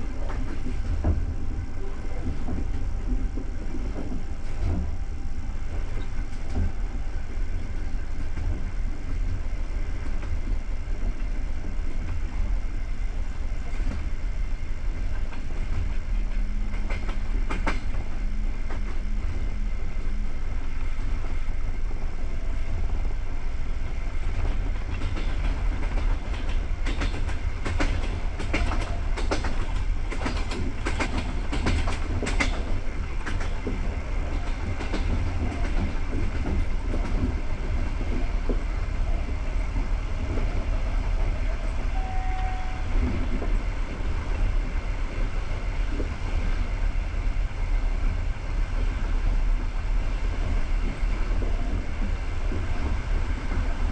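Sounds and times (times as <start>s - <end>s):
train coach rumbling on rails: 0.0s - 53.9s
wheels clacking on track: 15.0s - 19.1s, 24.0s - 46.7s.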